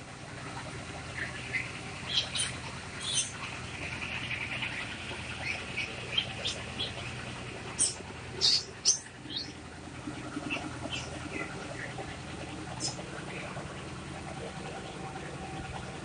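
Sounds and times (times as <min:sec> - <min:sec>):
low background hum: 0:00.0 - 0:16.0
small birds chirping: 0:01.0 - 0:13.8.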